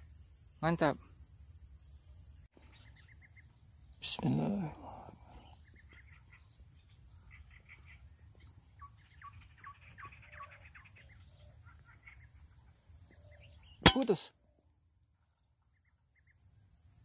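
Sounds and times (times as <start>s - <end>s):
small bird chirping: 2.5s - 14.3s.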